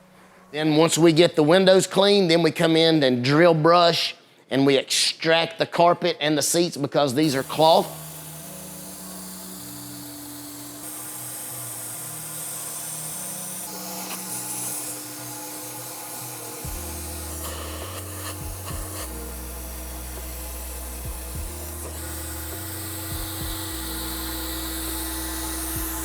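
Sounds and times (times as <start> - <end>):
background music with low held notes: 0.0 - 4.0, 7.2 - 26.0
carpet extractor spraying: 7.2 - 26.0
drill brush scrubbing: 7.2 - 26.0.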